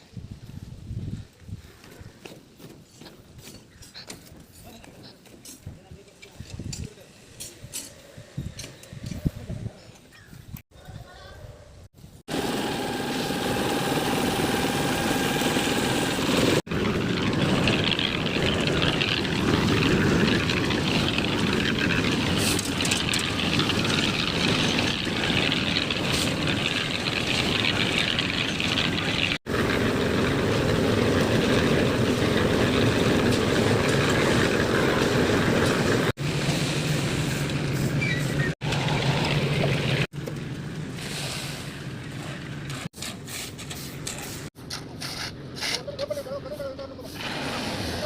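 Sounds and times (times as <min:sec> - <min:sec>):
engine humming: 0:12.3 - 0:41.1.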